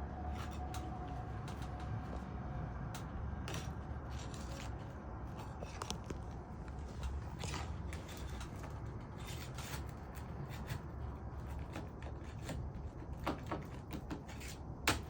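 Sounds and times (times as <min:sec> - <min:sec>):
roof shingle scraping and crackling: 0:03.4 - 0:15.0.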